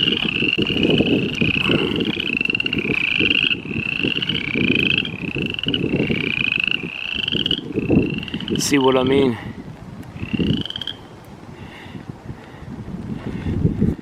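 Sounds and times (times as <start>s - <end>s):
frogs peeping: 0.0s - 9.1s, 10.1s - 11.2s
wind rumble on microphone: 0.0s - 14.0s.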